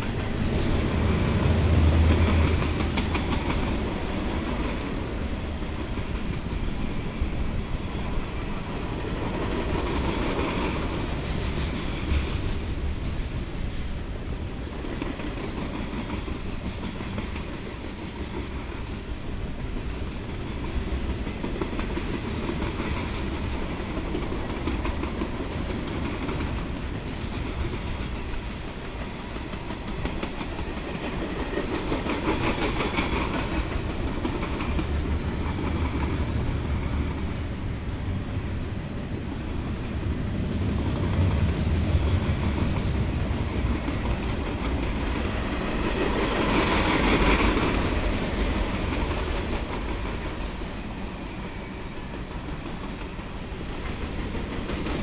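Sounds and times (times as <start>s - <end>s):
steel wheels rumbling on rail: 0.0s - 55.0s.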